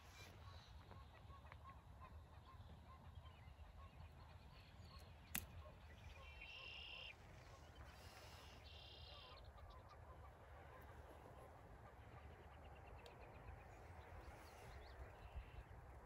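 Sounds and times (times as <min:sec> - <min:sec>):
short bird calls: 0:04.8 - 0:15.7.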